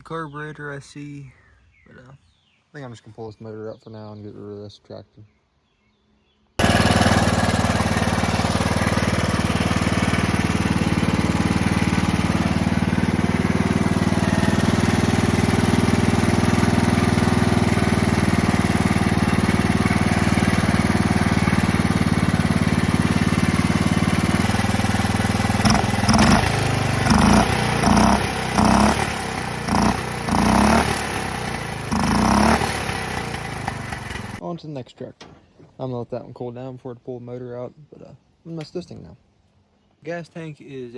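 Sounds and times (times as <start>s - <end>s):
small tractor engine running: 6.6s - 34.4s.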